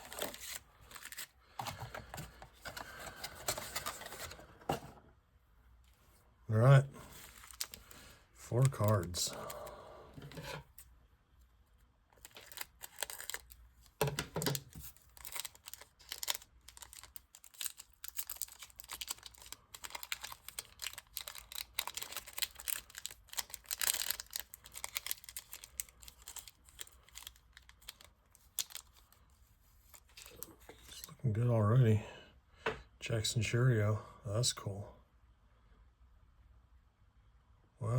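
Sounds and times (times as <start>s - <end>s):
card pack wrappers crinkling and tearing: 0.0s - 4.4s, 7.0s - 10.9s, 12.1s - 31.1s.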